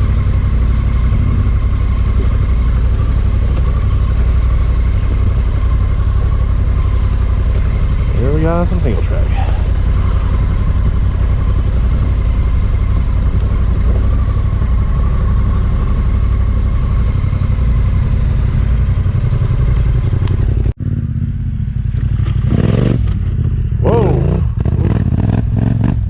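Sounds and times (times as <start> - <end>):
clatter: 0.0 - 20.8, 21.9 - 23.6
motorcycle engine running: 0.0 - 26.0.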